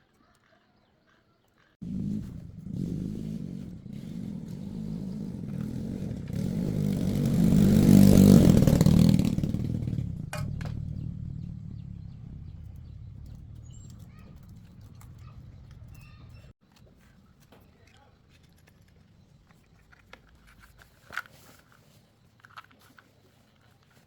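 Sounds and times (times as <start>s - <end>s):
engine running with low hum: 1.8s - 16.5s.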